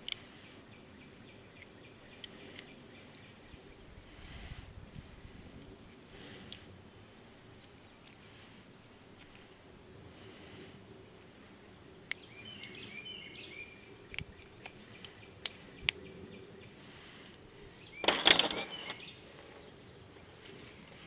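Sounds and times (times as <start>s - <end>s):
small birds chirping: 0.0s - 21.0s
rattling scrape: 18.0s - 19.0s
tools clicking and clinking: 18.0s - 19.0s.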